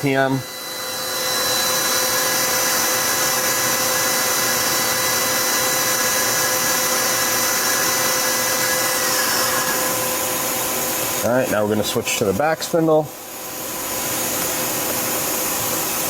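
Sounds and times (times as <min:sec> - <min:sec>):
lathe spindle whining: 0:00.0 - 0:11.3.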